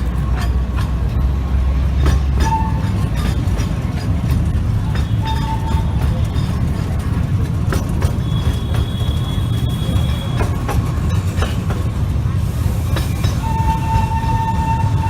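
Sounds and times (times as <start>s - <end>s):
train rumbling: 0.0s - 15.0s
wheels clicking over rail joints: 0.0s - 15.0s
high wheel squeal: 4.8s - 7.0s, 8.0s - 10.8s, 13.0s - 15.0s.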